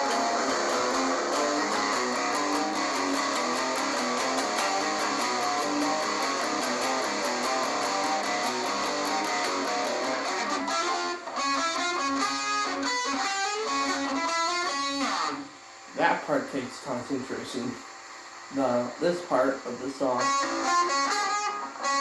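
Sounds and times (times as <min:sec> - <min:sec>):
electric guitar with long delay: 0:00.0 - 0:15.4, 0:20.1 - 0:22.0.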